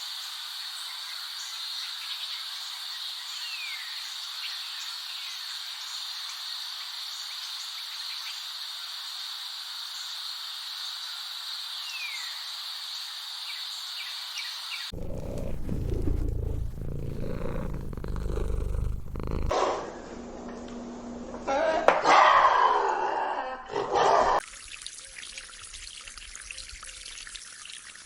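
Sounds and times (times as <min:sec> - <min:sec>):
high-pitched hiss: 0:05.1 - 0:14.6
lynx purring: 0:14.9 - 0:19.6.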